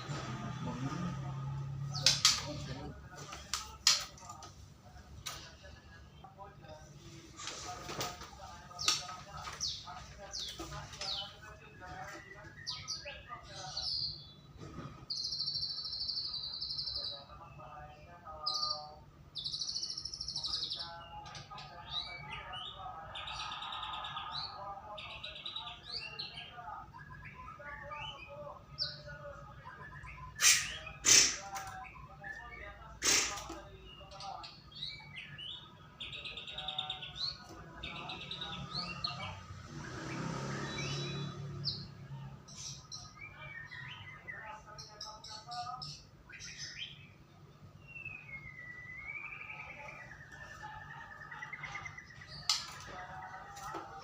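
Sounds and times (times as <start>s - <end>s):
bird singing trills and whistles: 47.8s - 50.3s.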